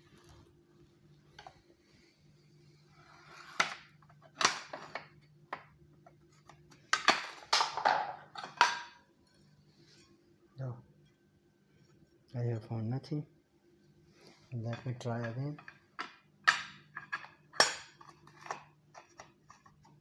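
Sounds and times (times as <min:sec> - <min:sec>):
low hum of lab equipment: 0:00.0 - 0:20.0.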